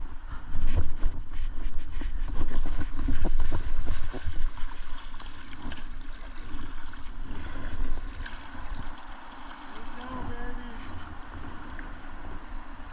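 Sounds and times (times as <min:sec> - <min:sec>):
rushing river water: 0:02.4 - 0:12.9
splashes and knocks: 0:02.5 - 0:12.1.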